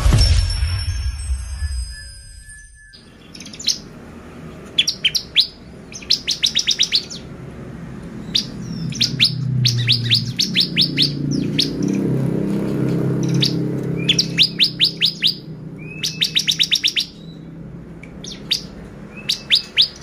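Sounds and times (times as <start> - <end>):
intro sound effect: 0.0 - 3.2
bird calling high chirps: 0.8 - 7.4, 8.1 - 12.2, 13.0 - 20.0.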